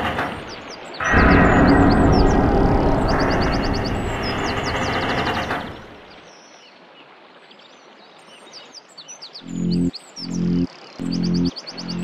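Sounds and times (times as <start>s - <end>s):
birds chirping: 0.4s - 6.9s, 9.1s - 12.0s
loud low pulsing tones: 1.0s - 5.6s, 9.4s - 12.0s
loud noisy wash: 1.0s - 5.7s.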